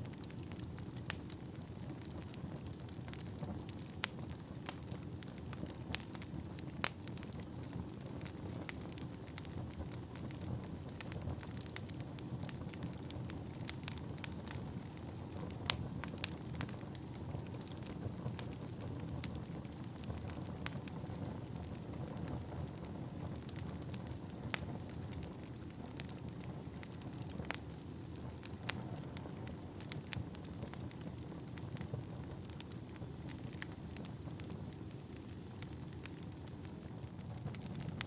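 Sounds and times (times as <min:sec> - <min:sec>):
burning logs crackling and popping: 0:00.0 - 0:38.0
low rumble of flames: 0:00.0 - 0:38.0.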